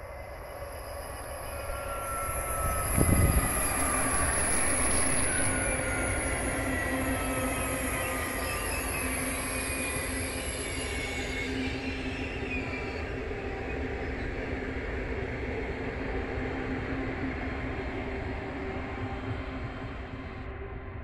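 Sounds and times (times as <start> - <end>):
high-speed train passing: 0.0 - 21.0
high whines: 2.4 - 5.9.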